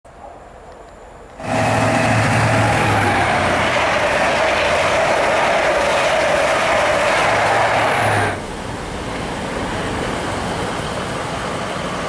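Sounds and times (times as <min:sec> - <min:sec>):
express train passing at speed: 0:00.1 - 0:12.0
low hum: 0:01.4 - 0:05.6.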